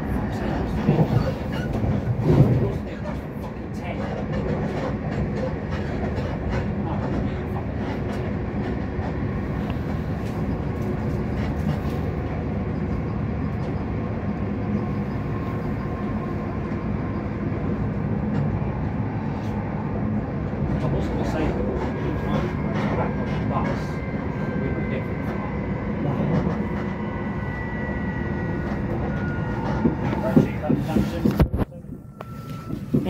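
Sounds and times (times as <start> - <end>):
train running noise: 0.0 - 33.0.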